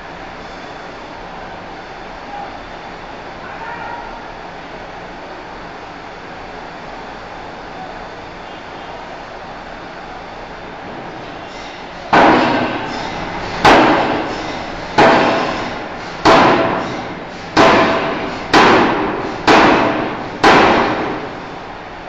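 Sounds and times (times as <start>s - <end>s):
hammer striking steel bar: 12.1s - 17.0s, 17.6s - 21.2s
steady machine hum: 12.1s - 22.0s.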